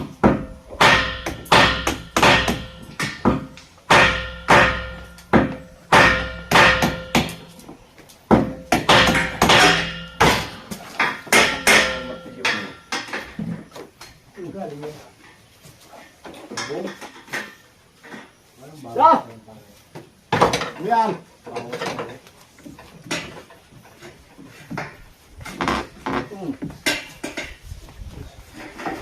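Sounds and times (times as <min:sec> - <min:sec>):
hammer striking metal: 0:00.2 - 0:07.6, 0:08.3 - 0:13.3.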